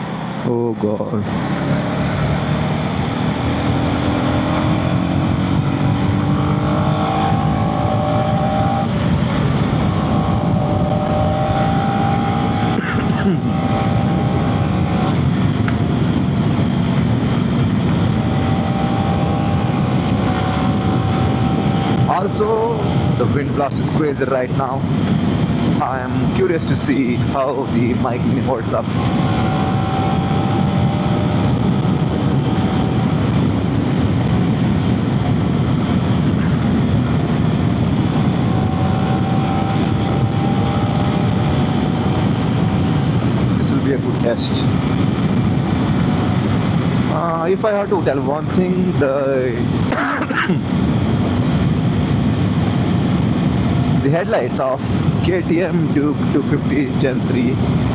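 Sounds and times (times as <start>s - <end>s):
motorcycle engine running: 0.0s - 23.7s, 27.0s - 48.8s
wind buffeting microphone: 0.0s - 57.9s.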